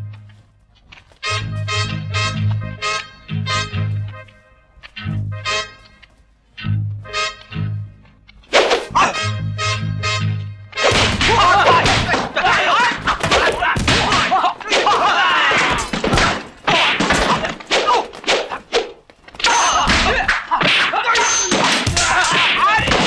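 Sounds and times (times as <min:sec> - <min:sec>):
whacks and thuds of blows: 0:08.5 - 0:09.1, 0:10.8 - 0:23.0
fighters shouting: 0:08.9 - 0:09.3, 0:11.0 - 0:23.0.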